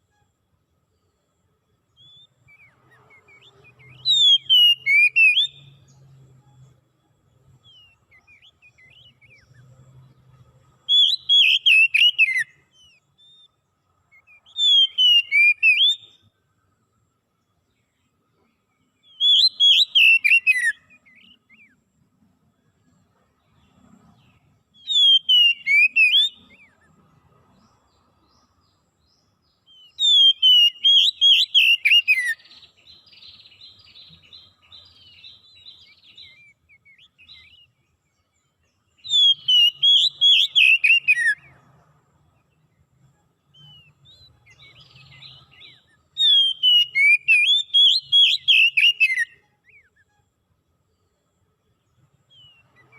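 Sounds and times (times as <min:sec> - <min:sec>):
soft bird twittering: 0:00.0 - 0:52.9
songbird whistling falling notes: 0:02.0 - 0:05.7, 0:10.9 - 0:12.6, 0:14.1 - 0:16.1, 0:19.1 - 0:21.7, 0:24.8 - 0:26.5, 0:39.0 - 0:41.5, 0:43.6 - 0:50.0.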